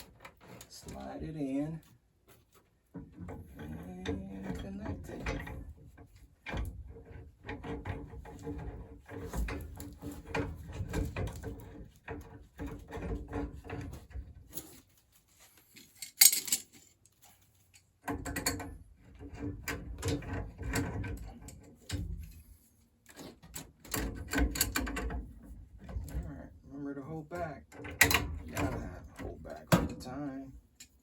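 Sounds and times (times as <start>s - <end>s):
metal pipe clicks and knocks: 2.9s - 14.7s, 17.7s - 26.3s, 27.3s - 31.0s.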